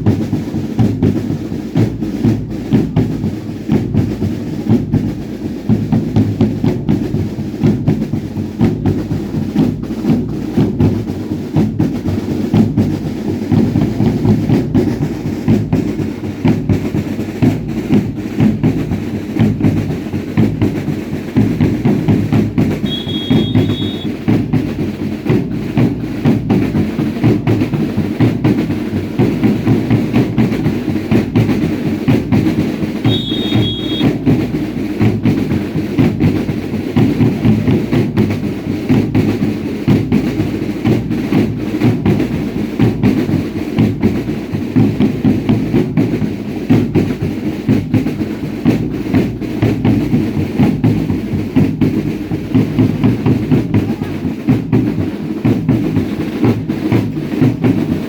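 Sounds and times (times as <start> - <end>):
drums beating driving rhythm: 0.0 - 58.0
high two-note whistle: 22.8 - 24.2, 33.0 - 34.2.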